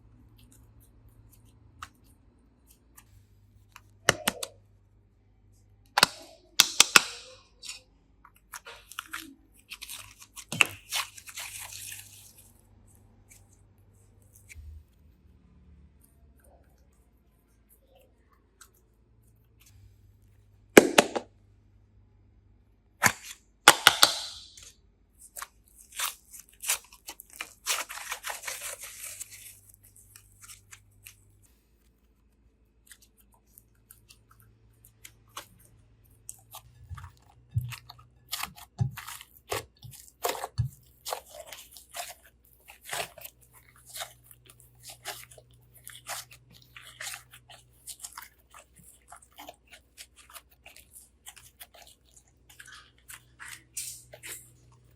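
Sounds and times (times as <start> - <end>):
slime crackling and popping: 23.0 - 31.3, 34.9 - 54.7.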